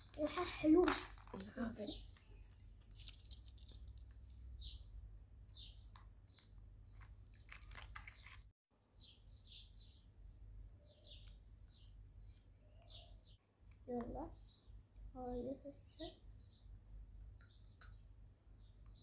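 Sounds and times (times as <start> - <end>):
faint bird chirps: 4.3 - 19.0.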